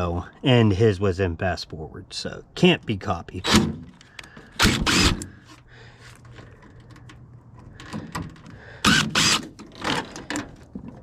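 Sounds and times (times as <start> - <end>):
clattering knocks and scraping: 9.4 - 11.0.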